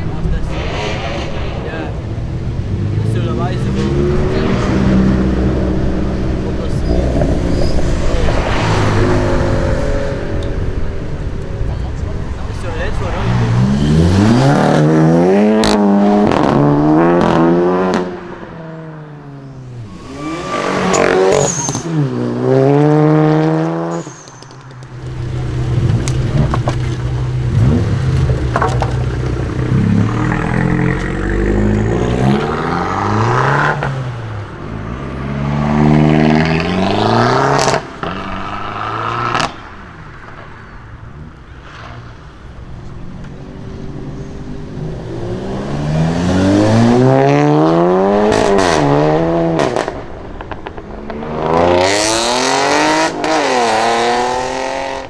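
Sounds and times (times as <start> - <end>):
exhaust bangs: 0.0 - 43.2
cars accelerating hard: 0.0 - 55.0.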